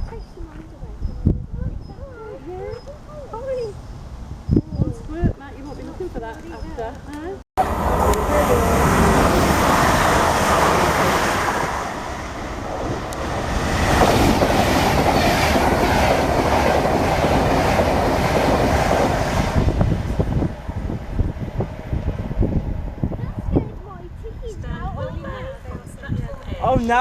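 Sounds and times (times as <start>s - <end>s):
train wheels clattering on rails: 12.8s - 19.6s.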